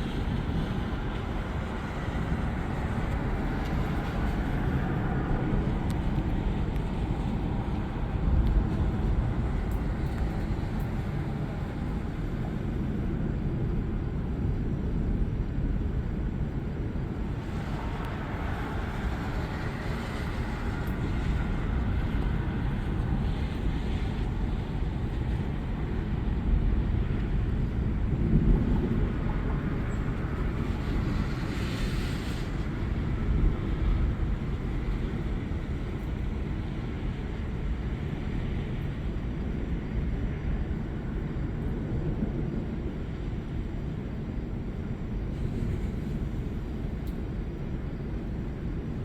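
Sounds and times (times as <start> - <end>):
wind on microphone: 0.0 - 49.0
thunder rumbling: 15.7 - 31.5.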